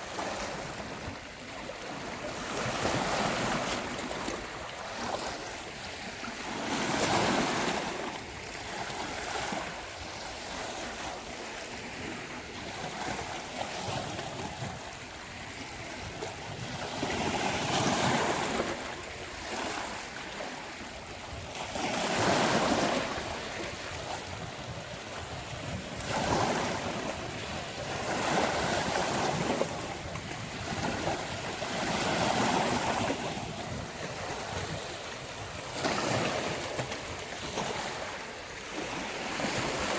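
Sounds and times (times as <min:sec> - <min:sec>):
sea waves breaking on beach: 0:00.0 - 0:39.9
wind on microphone: 0:00.0 - 0:39.9.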